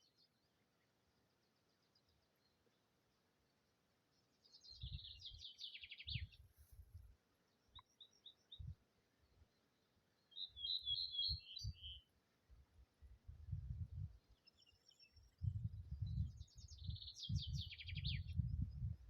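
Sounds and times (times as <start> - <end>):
songbird twittering: 4.5 - 6.4, 10.2 - 12.1, 14.2 - 18.9.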